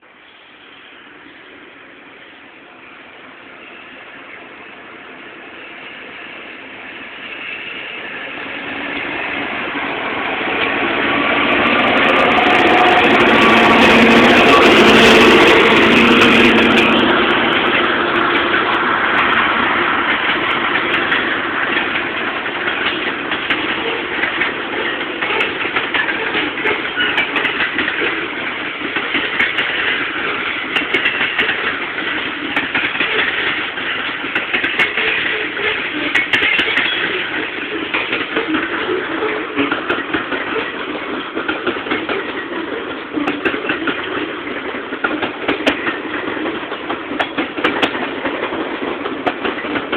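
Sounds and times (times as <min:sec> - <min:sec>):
diesel locomotive engine: 0:00.0 - 0:49.9
train wheels clicking over rail joints: 0:10.2 - 0:49.9.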